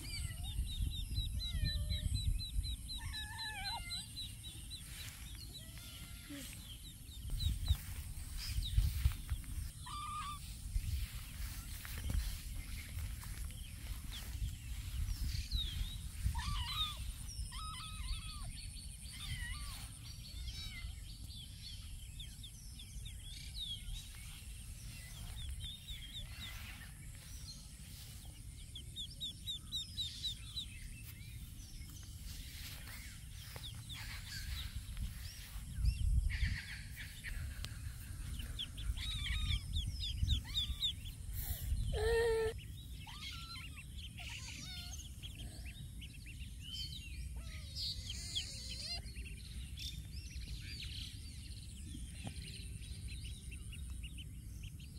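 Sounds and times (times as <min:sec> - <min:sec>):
birds chirping and trilling: 0:00.0 - 0:54.9
steady low rumble: 0:06.5 - 0:19.1, 0:20.0 - 0:42.0.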